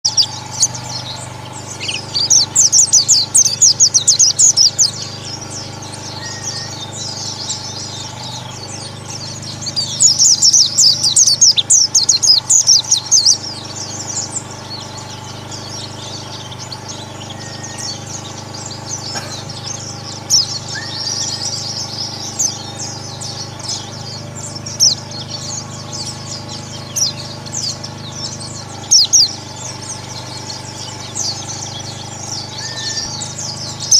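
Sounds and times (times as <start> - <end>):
flock of birds chirping: 0.0 - 33.9
steady low hum: 0.0 - 33.9.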